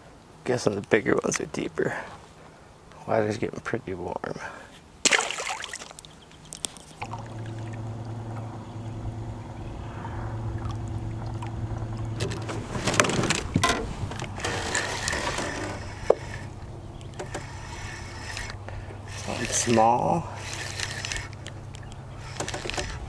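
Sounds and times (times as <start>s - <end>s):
boat motor humming: 5.1s - 23.0s
knocks and rattles: 12.0s - 18.4s.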